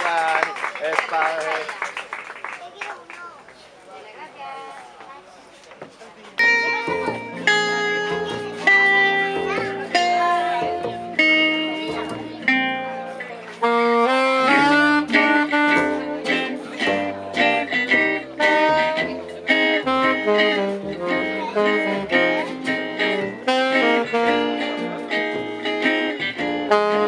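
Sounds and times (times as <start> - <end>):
gypsy jazz band playing: 6.4 - 27.0
strummed acoustic guitar: 6.4 - 27.0
low bass notes: 6.5 - 27.0.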